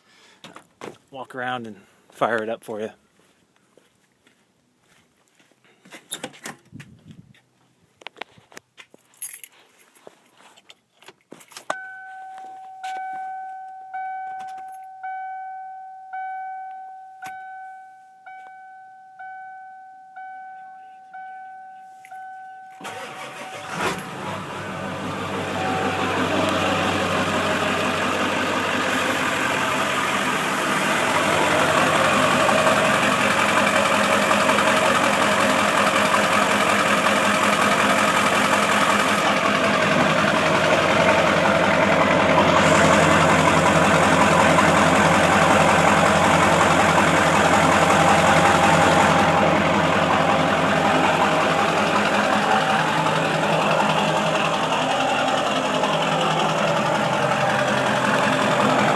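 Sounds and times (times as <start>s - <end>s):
diesel engine idling: 22.8s - 58.9s.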